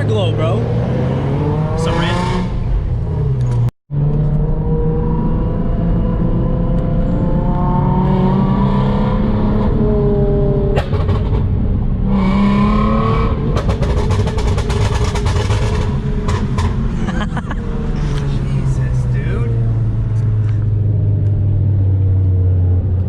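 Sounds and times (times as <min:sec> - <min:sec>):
car engine revving: 0:00.0 - 0:23.0
exhaust pops and crackles: 0:13.5 - 0:16.9.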